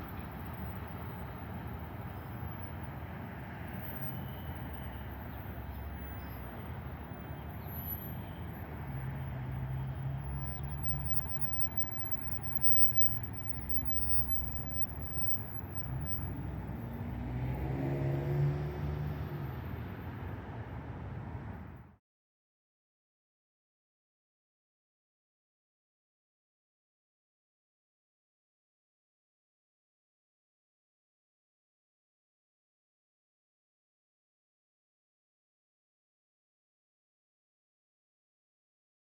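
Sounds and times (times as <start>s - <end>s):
vehicle engine rumbling: 0.0s - 21.9s.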